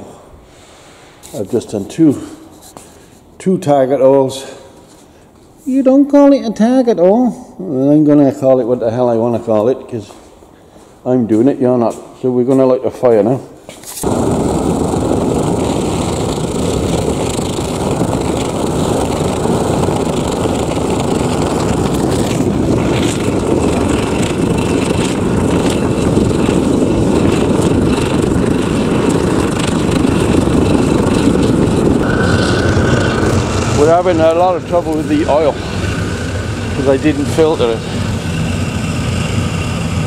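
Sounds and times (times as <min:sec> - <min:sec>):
furnace blower rushing: 0:13.9 - 0:40.0.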